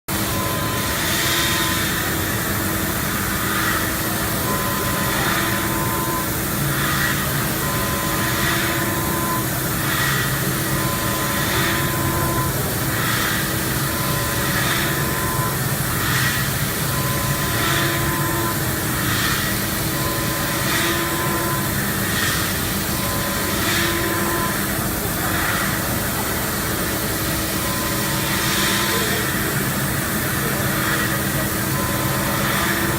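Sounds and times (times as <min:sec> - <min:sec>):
machine tones switching on and off: 0:00.1 - 0:32.9
milling machine running: 0:00.1 - 0:32.9.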